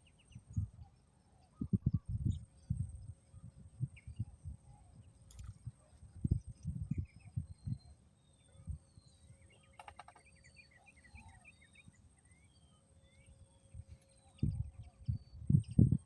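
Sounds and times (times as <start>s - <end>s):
small birds chirping: 0.0s - 16.0s
wind bumps on microphone: 0.4s - 0.8s, 1.6s - 7.9s, 13.8s - 16.0s
bird rattle: 9.8s - 10.2s.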